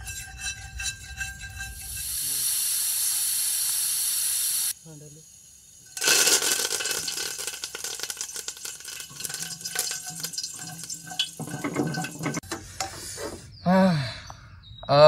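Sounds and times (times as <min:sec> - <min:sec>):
spatula stirring: 0:00.0 - 0:02.3, 0:06.9 - 0:12.4
seeds crackling in hot oil: 0:00.7 - 0:12.4.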